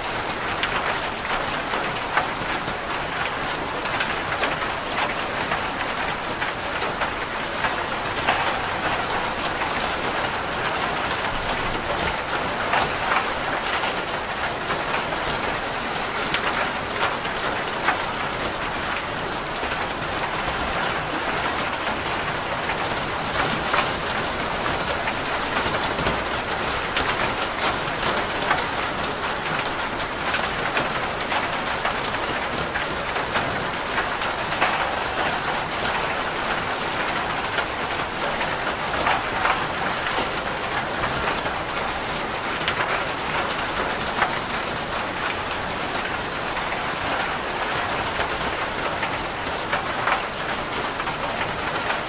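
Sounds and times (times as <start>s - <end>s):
rain falling on a roof: 0.0s - 52.0s.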